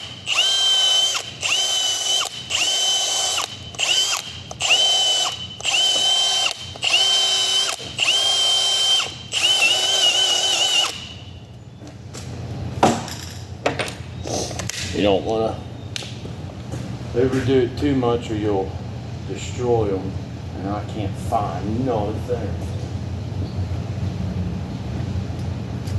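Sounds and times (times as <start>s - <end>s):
impact wrench bursts: 0.0s - 11.3s.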